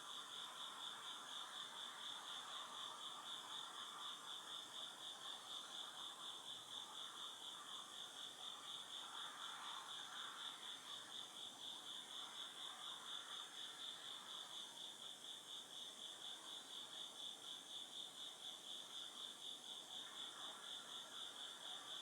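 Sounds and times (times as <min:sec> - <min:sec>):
chorus of insects: 0:00.0 - 0:22.0.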